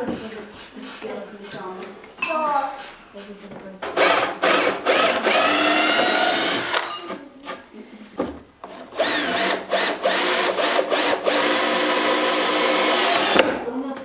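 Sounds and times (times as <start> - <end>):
electric drill motor whining: 3.8 - 7.6, 8.6 - 13.6.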